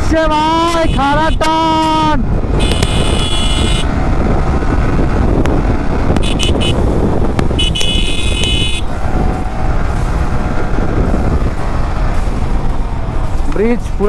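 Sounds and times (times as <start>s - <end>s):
motorcycle engine riding: 0.0s - 14.0s
wind on microphone: 0.0s - 14.0s
vehicle horn honking: 0.6s - 1.8s, 2.6s - 4.0s, 6.2s - 6.8s, 7.6s - 8.9s.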